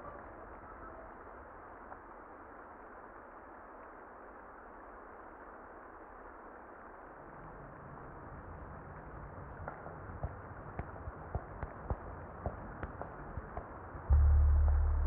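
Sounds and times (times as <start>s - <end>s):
muffled rain hiss: 0.0s - 15.0s
low tone: 14.1s - 15.0s.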